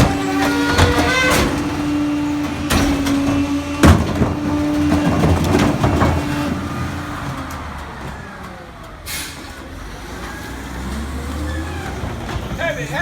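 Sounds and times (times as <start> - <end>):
metal squealing: 0.0 - 7.7
garbage truck compacting clanks: 0.0 - 13.0.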